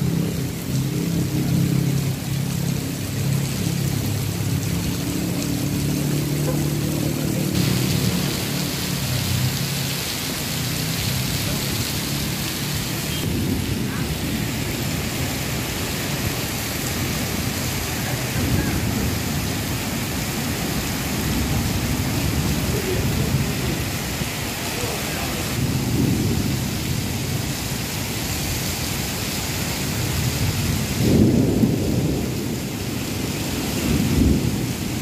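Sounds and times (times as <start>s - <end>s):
heavy rain: 0.0s - 35.0s
strong wind: 12.9s - 35.0s.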